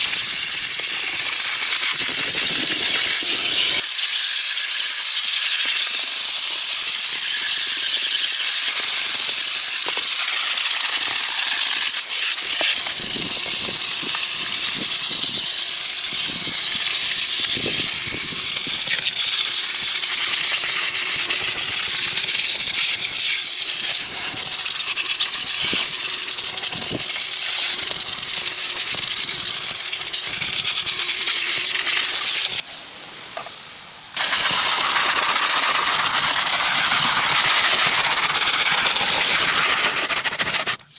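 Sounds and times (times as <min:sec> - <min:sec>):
loud hiss of spray: 0:31.0 - 0:40.9.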